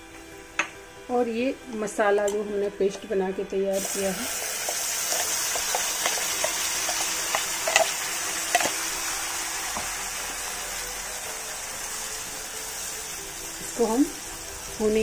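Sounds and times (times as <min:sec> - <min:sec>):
paste sizzling in hot oil: 0:03.7 - 0:15.0
oil popping: 0:03.8 - 0:08.9.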